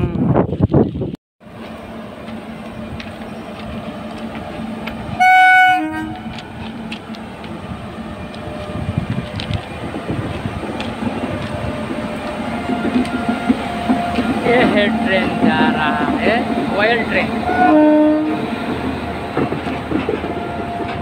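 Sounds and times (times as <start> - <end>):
train wheels rumbling on rails: 0.1 - 21.0
train horn blast: 5.1 - 6.3, 17.4 - 18.4
wheels clicking over rail joints: 8.3 - 17.2, 18.4 - 21.0.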